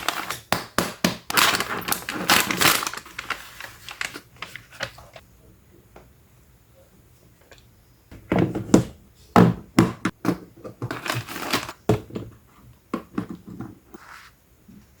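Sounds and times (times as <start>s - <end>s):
packaging crinkling and rustling: 0.0s - 0.5s, 1.2s - 5.2s, 10.8s - 11.8s.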